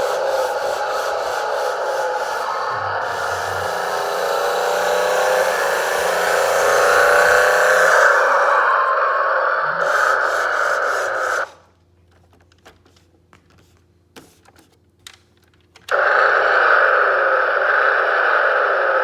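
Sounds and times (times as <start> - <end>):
toy truck motor grinding whir: 0.0 - 9.0, 15.9 - 19.0.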